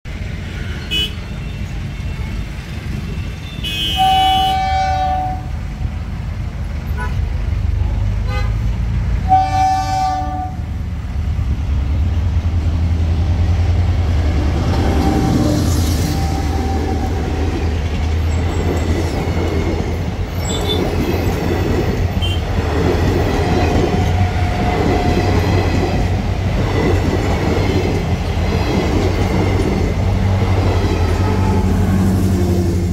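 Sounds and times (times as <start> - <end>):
train power car rumbling: 0.0 - 32.9
train horn blasts: 3.4 - 5.6, 8.2 - 10.7, 14.2 - 17.2, 22.2 - 22.5
wheels clattering on rails: 11.4 - 32.1.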